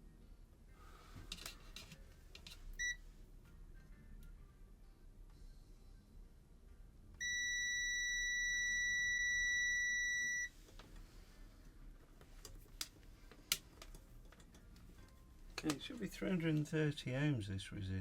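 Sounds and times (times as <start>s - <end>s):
high-pitched multimeter beep: 7.2s - 10.5s.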